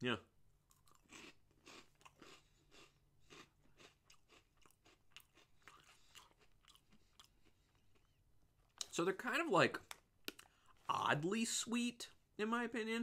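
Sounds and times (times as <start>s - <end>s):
chewing crunchy snack: 0.6s - 9.0s.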